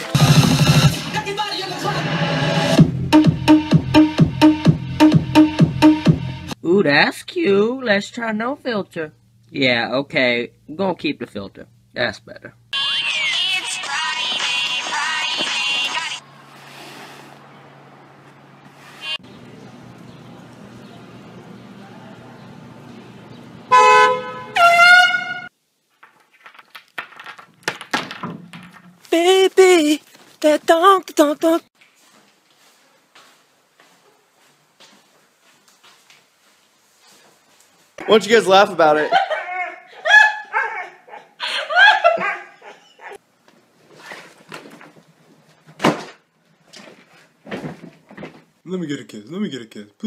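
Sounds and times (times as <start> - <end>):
low street hum: 8.9 - 25.5
vehicle horn honks: 23.7 - 25.5.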